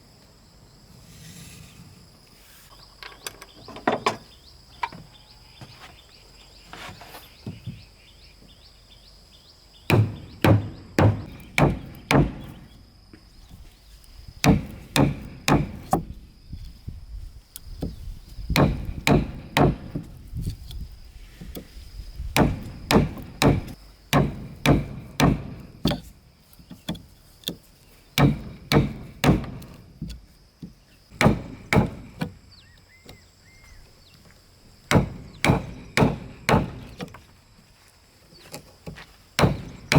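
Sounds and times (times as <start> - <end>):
hand tool striking wood: 9.9 - 12.7, 14.4 - 16.2, 17.8 - 20.6, 22.4 - 32.4, 34.9 - 37.3, 38.9 - 39.9.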